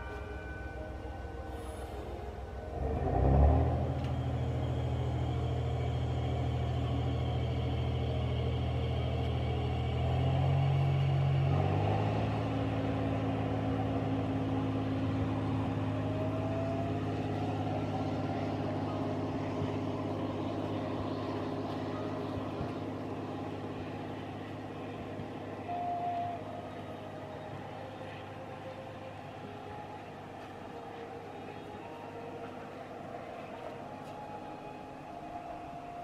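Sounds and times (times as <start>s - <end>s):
short steady tone: 0.0s - 9.0s
diesel railcar engine: 0.0s - 36.0s
rising whine: 0.0s - 36.0s.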